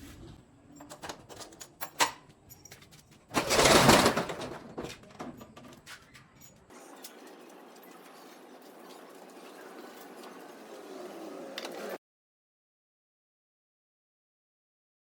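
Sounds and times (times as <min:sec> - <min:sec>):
metallic clicks and clinks: 0:00.7 - 0:03.2
garage door rattling open: 0:03.3 - 0:06.7.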